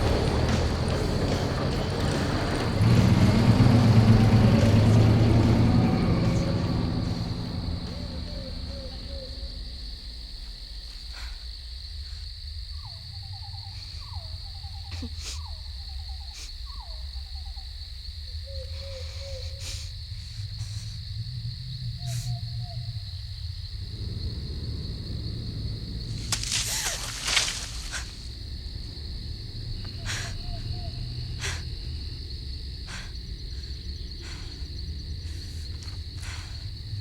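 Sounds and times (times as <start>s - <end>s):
high insect drone: 0.0s - 37.0s
trilling animal calls: 3.5s - 10.2s, 23.8s - 28.5s, 29.8s - 32.2s
low rumble: 20.2s - 35.8s.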